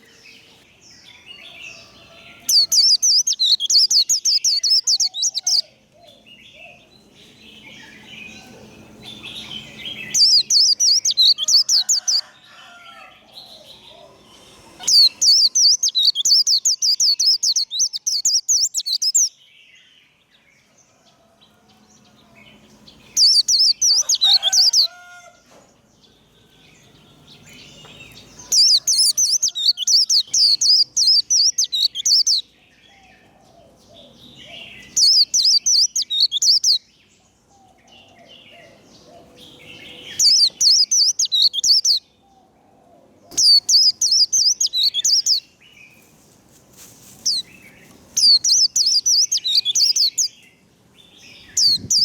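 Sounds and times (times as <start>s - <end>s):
quiet bird chirps: 0.0s - 12.3s, 13.4s - 21.2s, 26.0s - 46.1s
bird singing rapid warble: 0.0s - 12.4s, 13.4s - 20.5s, 22.0s - 25.0s, 25.9s - 46.1s, 47.2s - 52.0s.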